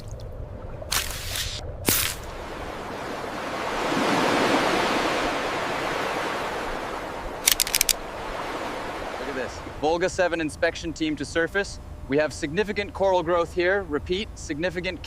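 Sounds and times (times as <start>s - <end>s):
rushing water: 0.0s - 9.8s
sharp clicks: 7.4s - 8.0s.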